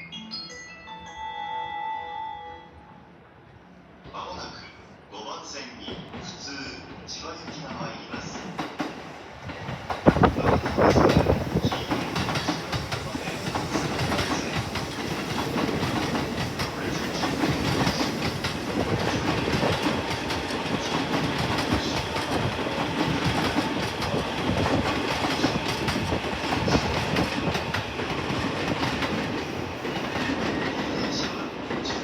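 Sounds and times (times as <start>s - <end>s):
electric train rumbling: 0.2s - 32.0s
train wheels clacking on rail joints: 7.7s - 32.0s.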